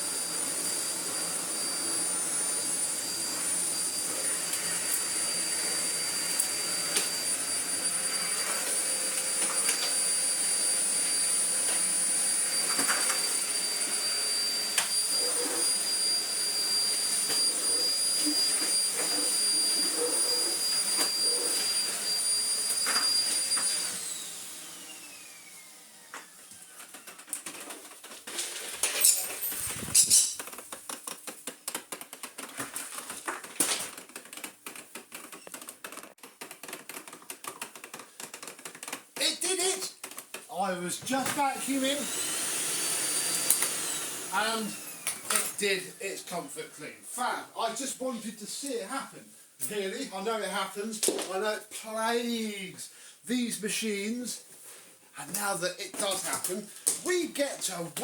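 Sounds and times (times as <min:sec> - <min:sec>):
vacuum cleaner motor whine: 0:00.0 - 0:30.1, 0:41.1 - 0:46.0.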